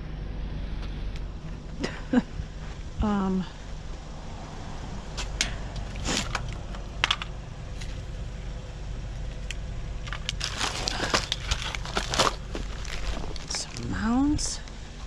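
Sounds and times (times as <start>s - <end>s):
steady low rumble: 0.0s - 15.0s
packaging rustling and crinkling: 10.0s - 14.0s.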